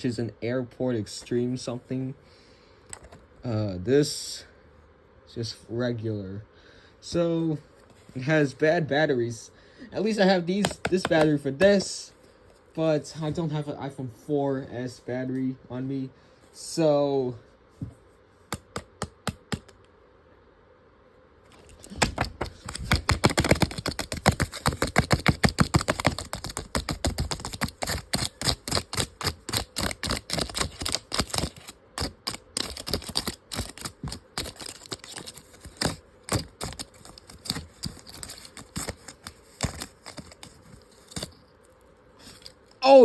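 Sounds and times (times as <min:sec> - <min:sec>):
paper clicks and crackles: 0:10.6 - 0:11.8, 0:21.5 - 0:41.4.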